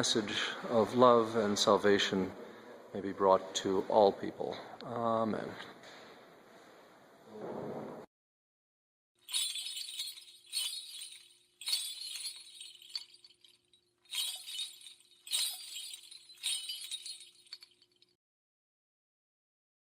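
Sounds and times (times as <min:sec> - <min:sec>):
metallic jingling clinks: 0:09.2 - 0:18.2.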